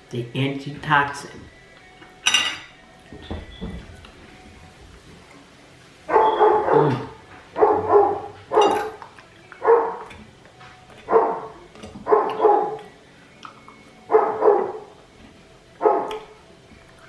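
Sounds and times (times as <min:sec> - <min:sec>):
dog barking: 0:06.1 - 0:09.0, 0:09.6 - 0:10.2, 0:11.0 - 0:12.9, 0:14.1 - 0:14.9, 0:15.8 - 0:16.4.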